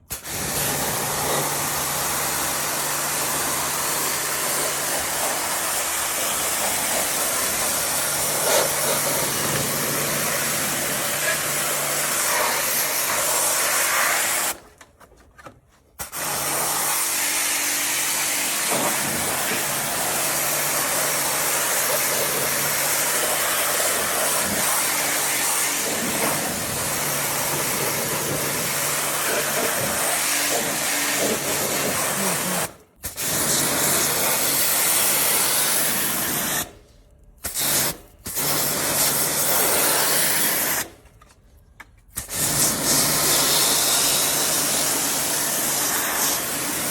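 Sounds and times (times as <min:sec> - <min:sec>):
pressure washer pump humming: 0:00.1 - 0:14.6, 0:16.0 - 0:36.6
water jet hissing: 0:00.1 - 0:14.6, 0:16.0 - 0:36.7.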